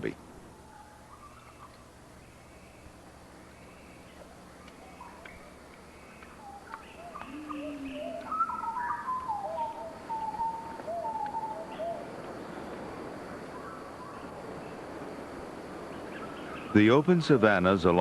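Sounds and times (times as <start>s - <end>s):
birds whistling calls: 0.5s - 14.9s, 15.8s - 17.0s
low cooing note: 7.1s - 12.0s.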